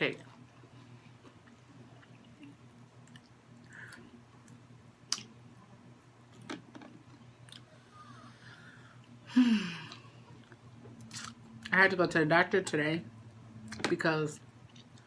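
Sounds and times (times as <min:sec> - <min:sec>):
chewing fried food: 0:00.2 - 0:04.2.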